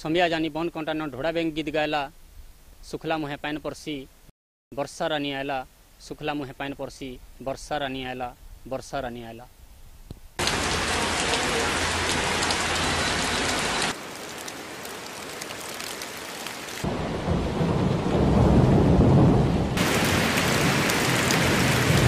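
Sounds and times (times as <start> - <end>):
heavy rain hissing: 10.4 - 22.0
thunder rumbling: 16.8 - 22.0.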